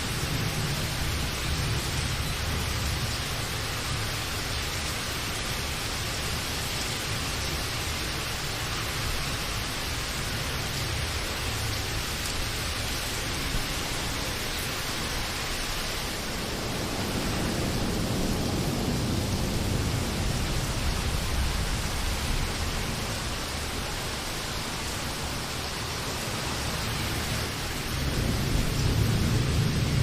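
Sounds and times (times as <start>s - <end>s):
steady rain hissing: 0.0s - 30.0s
low rolling thunder: 13.2s - 30.0s.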